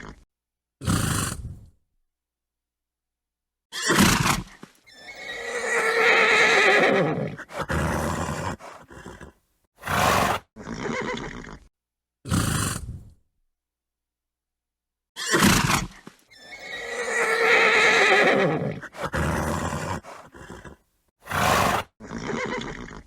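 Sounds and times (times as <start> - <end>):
horse snorting: 0.8 - 1.7, 3.9 - 11.7, 12.3 - 13.2, 15.3 - 23.0
horse neighing: 3.8 - 11.7, 15.2 - 23.0.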